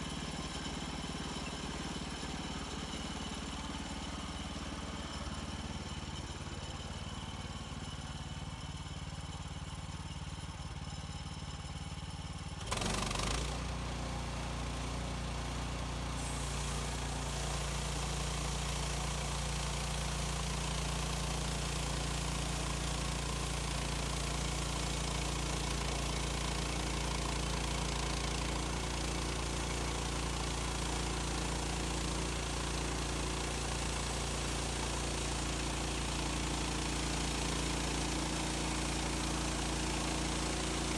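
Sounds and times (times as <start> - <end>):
small gasoline engine running: 0.0 - 40.9.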